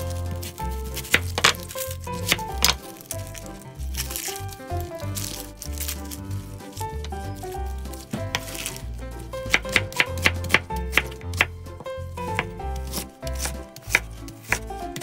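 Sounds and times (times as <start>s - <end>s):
background music with bass line: 0.0s - 15.0s
knife chopping onion on board: 8.0s - 8.8s, 9.4s - 15.0s.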